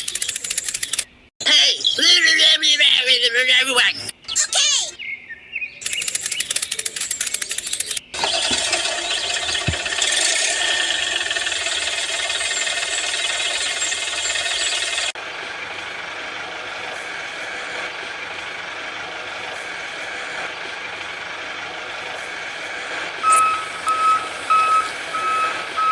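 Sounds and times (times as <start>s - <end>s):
engine cranking clicks: 0.0s - 1.2s, 5.8s - 15.2s
vehicle engine running: 8.1s - 25.9s.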